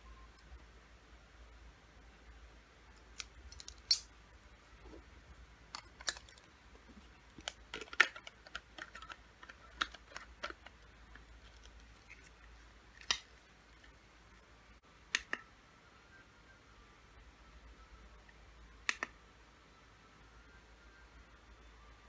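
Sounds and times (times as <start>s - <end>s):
packaging clicks and taps: 5.8s - 12.4s.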